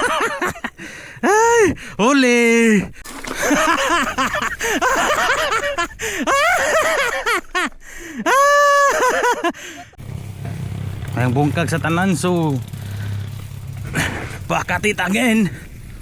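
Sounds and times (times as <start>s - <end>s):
people crying out and laughing: 3.4s - 10.0s
low engine hum: 10.0s - 16.0s.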